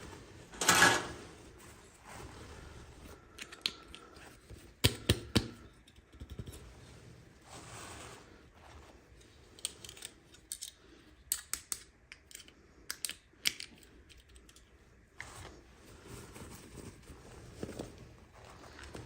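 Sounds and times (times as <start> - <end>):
plastic pieces clicking: 9.5 - 14.7.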